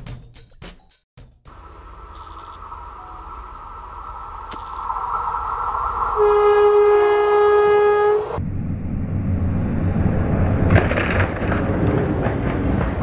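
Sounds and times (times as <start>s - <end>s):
locomotive rumbling past: 1.5s - 13.0s
sharp crack: 3.4s - 7.3s, 10.2s - 13.0s
train horn: 6.1s - 8.4s.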